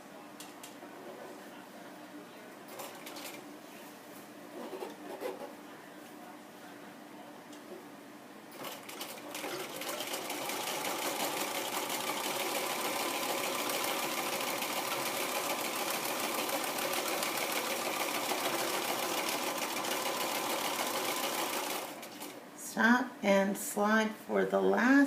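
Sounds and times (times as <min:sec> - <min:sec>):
sewing machine stitching: 0:08.6 - 0:22.3.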